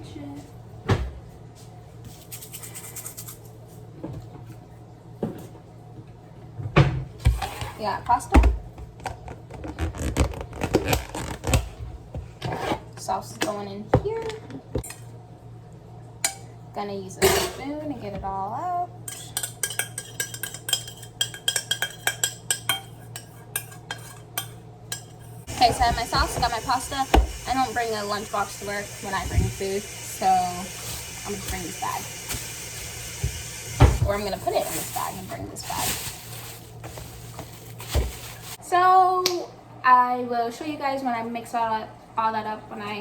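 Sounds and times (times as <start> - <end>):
kitchenware scraping: 6.9 - 15.0, 17.2 - 18.4, 19.1 - 38.6
spoon scraping a metal pot: 19.1 - 27.2.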